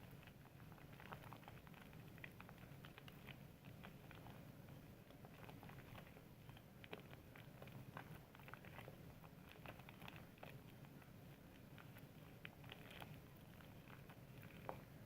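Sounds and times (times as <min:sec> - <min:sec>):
soap lather squishing and popping: 0:00.3 - 0:15.0.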